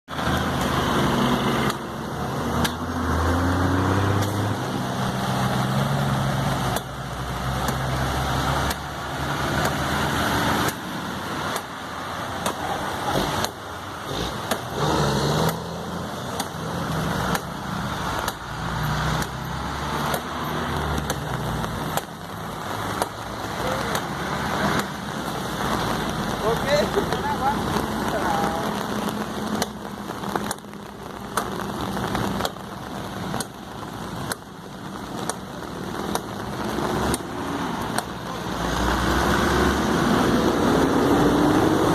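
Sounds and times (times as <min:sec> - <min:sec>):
vehicle engines idling and pulling away: 0:00.1 - 0:41.9.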